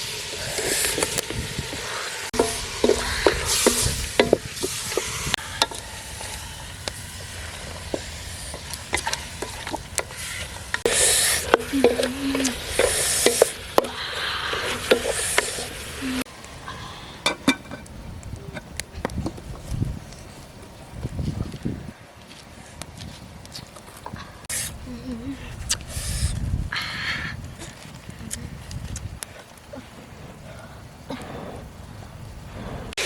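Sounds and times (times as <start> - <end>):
food sizzling in a pan: 0.0 - 16.3
utensil tapping and scraping pan: 2.4 - 5.8.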